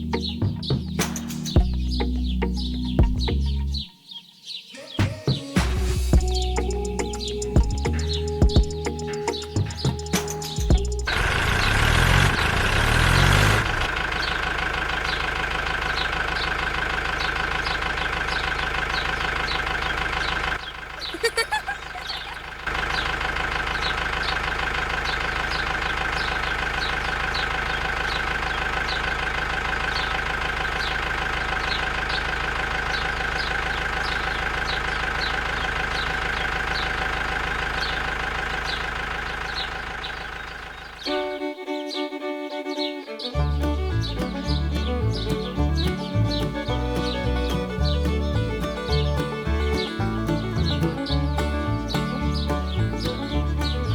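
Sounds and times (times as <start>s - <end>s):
small motor running with ticking: 7.6s - 20.8s.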